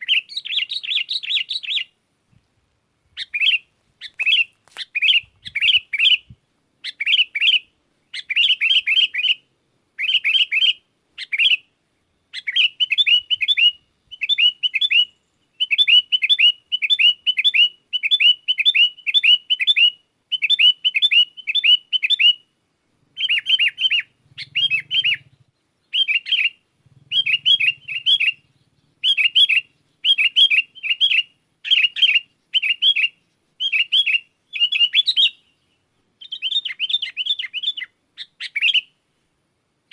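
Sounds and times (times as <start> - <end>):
bulbul singing chirpy phrases: 23.1 - 38.9.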